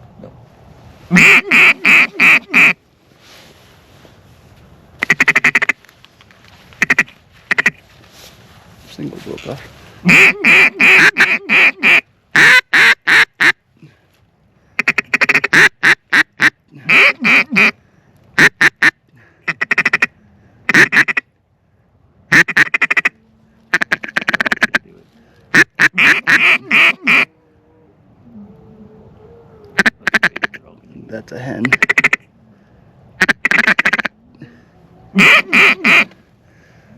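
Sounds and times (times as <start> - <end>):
duck quacking: 1.1 - 2.8, 5.0 - 5.8, 6.8 - 7.8, 10.0 - 13.6, 14.8 - 17.8, 18.4 - 20.1, 20.7 - 21.2, 22.3 - 23.1, 23.7 - 24.8, 25.5 - 27.3, 29.8 - 30.6, 31.6 - 32.2, 33.2 - 34.1, 35.2 - 36.2.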